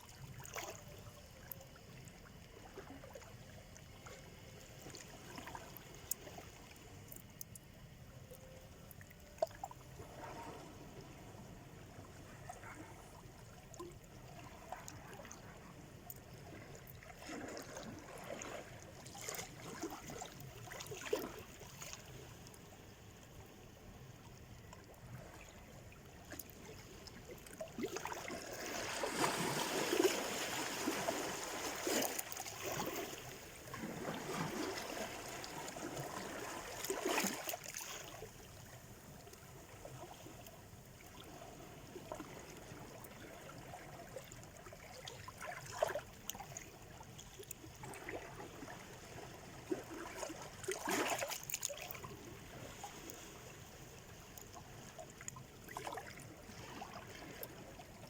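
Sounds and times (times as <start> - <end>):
water lapping: 9.4 - 22.8, 25.1 - 58.0
water splashes: 26.2 - 58.0.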